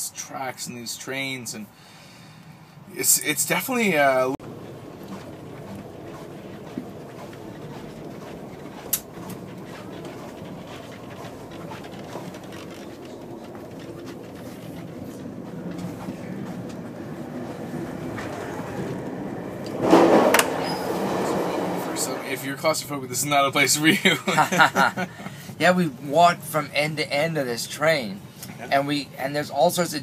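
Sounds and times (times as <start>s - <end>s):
train running rumble: 4.4s - 23.0s.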